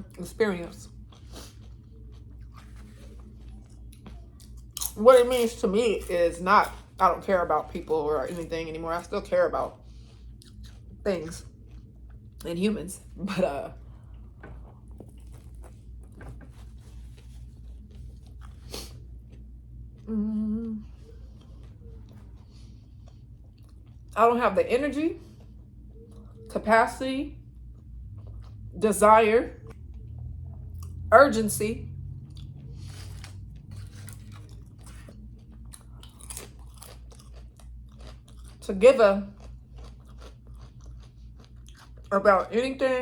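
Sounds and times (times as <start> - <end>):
person chewing food: 0.8 - 5.4, 9.7 - 13.2, 13.8 - 24.2, 27.6 - 28.7, 29.6 - 31.1, 32.0 - 38.6, 39.2 - 42.1
person humming mmm: 20.0 - 21.0.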